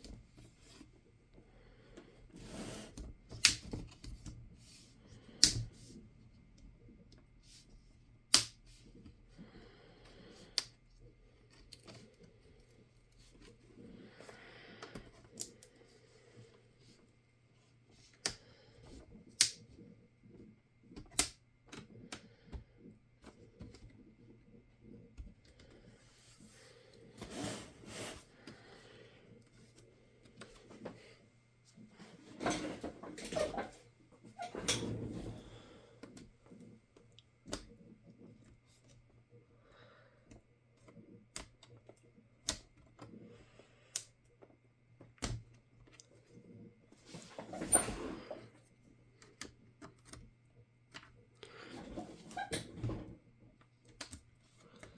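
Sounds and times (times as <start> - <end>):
clicks and taps of tools and plastic: 20.9 - 22.6, 53.6 - 54.9
rustling scrape: 27.2 - 28.3.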